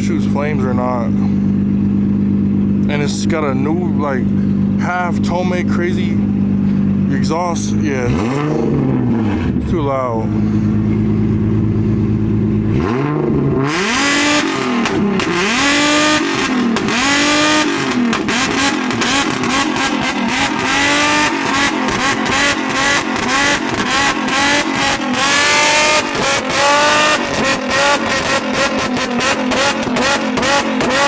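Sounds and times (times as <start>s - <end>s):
car engine revving: 0.0s - 31.0s
exhaust pops and crackles: 10.8s - 31.0s.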